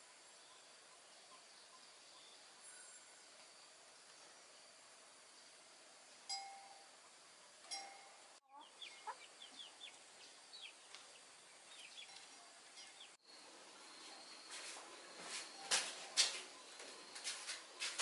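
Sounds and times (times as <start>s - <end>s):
background hiss: 0.0s - 18.0s
sharp ringing sounds: 6.3s - 7.0s, 7.6s - 9.2s
chickens clucking softly: 8.5s - 10.0s
chicks chirping: 8.5s - 13.2s.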